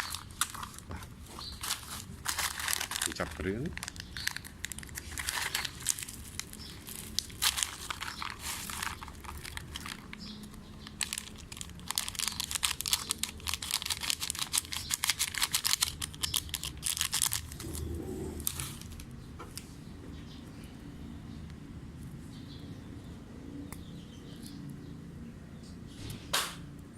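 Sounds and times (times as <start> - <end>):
plastic sachets crinkling: 0.0 - 19.1.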